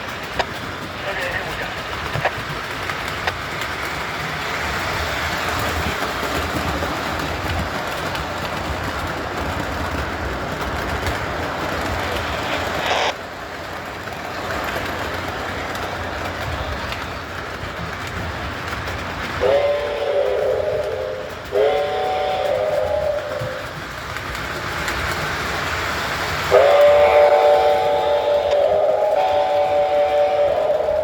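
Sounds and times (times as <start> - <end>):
model train rumble and hiss: 0.0 - 31.0
multi-tone train horn blasts: 19.4 - 23.6, 26.5 - 31.0.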